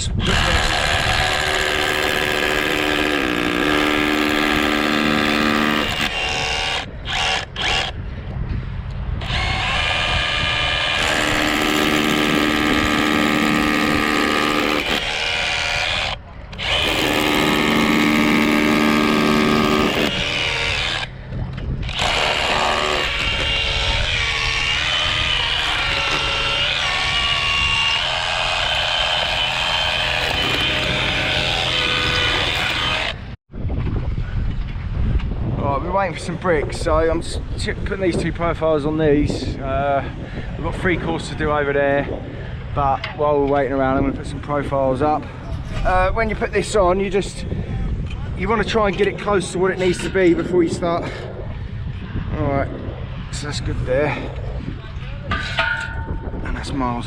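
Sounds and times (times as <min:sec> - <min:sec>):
electric paddle mixer running: 0:00.3 - 0:07.9, 0:09.3 - 0:21.1.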